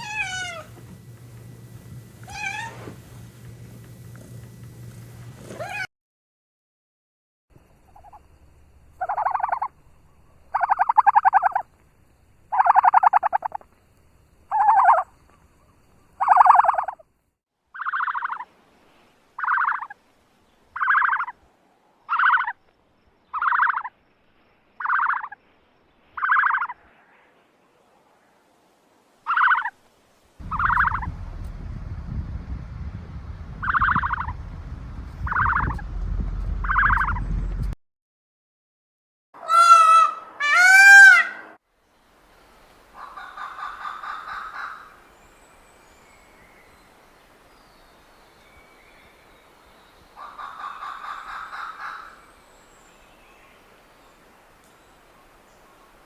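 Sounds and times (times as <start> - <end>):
low background rumble: 0.0 - 5.8, 30.4 - 37.8
farm bird calling: 24.8 - 25.4, 26.2 - 26.8, 30.4 - 31.6, 33.6 - 34.6, 43.0 - 45.0.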